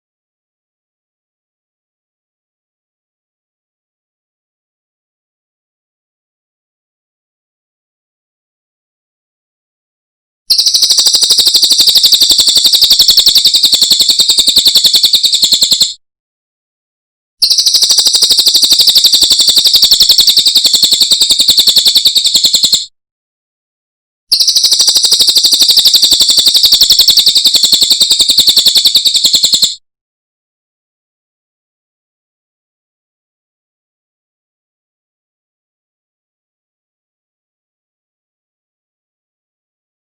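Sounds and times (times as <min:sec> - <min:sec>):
bird trilling: 0:17.4 - 0:22.9, 0:24.3 - 0:29.7.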